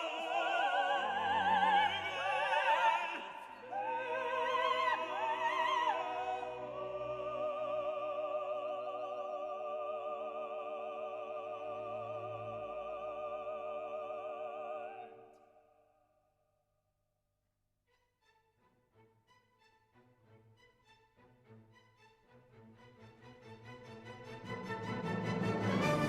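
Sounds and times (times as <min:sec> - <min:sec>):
operatic singing with accompaniment: 0:00.0 - 0:15.5.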